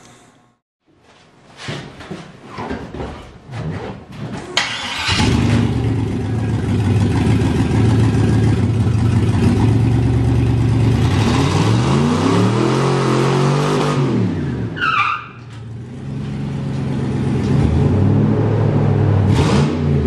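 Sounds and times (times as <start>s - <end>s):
engine running unevenly: 5.5s - 11.3s
engine at high revs in burnout: 10.8s - 14.7s, 17.4s - 20.0s.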